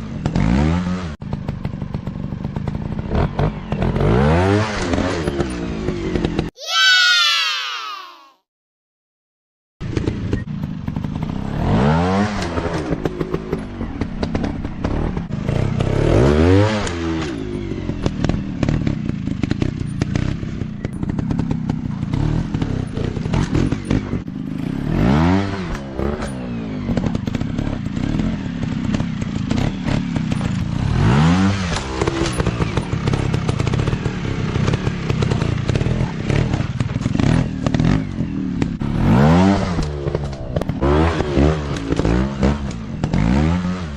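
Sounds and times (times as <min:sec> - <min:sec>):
dirt bike engine revving hard: 0:11.0 - 0:13.1, 0:14.3 - 0:17.4, 0:21.0 - 0:43.9.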